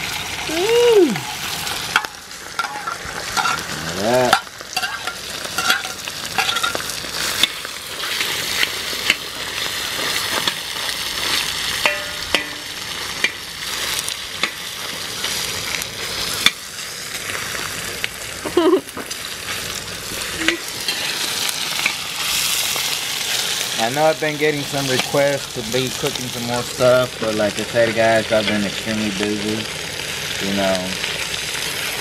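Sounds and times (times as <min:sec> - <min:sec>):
meat sizzling on a hot disc: 0:00.0 - 0:32.0
metal spatula scraping: 0:01.6 - 0:07.5.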